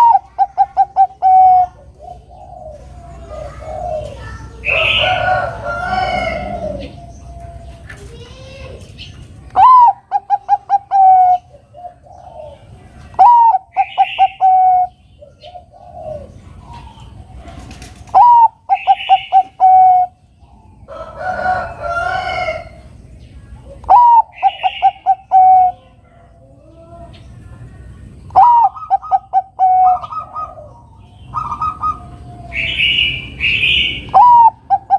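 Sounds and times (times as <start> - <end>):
dove cooing song: 0.0 - 34.9
harsh bird call: 13.2 - 20.2, 23.9 - 25.9, 28.3 - 34.9.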